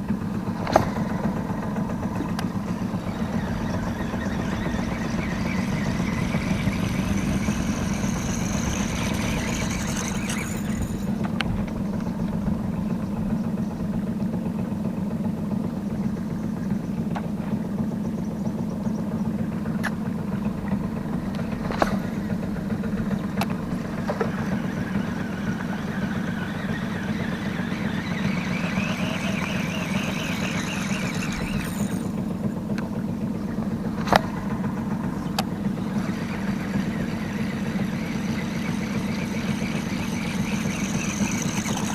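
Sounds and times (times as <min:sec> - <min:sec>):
boat engine droning: 0:00.0 - 0:41.9
wavering whirr: 0:00.0 - 0:41.9.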